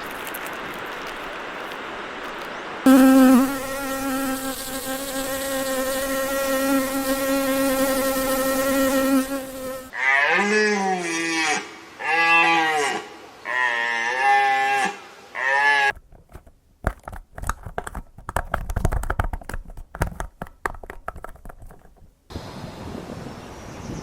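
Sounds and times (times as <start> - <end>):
insect buzzing: 0.0 - 10.0.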